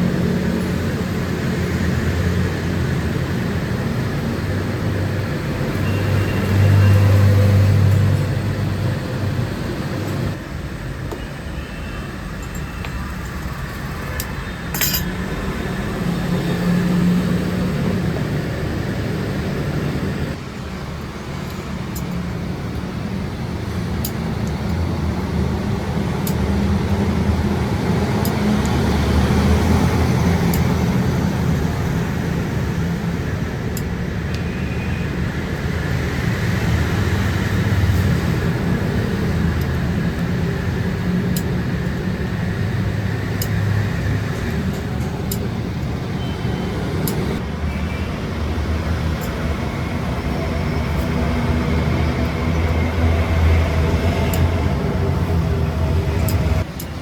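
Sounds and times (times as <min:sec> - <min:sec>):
workshop machinery humming: 0:00.0 - 0:57.0
light metallic clinks: 0:12.3 - 0:15.2.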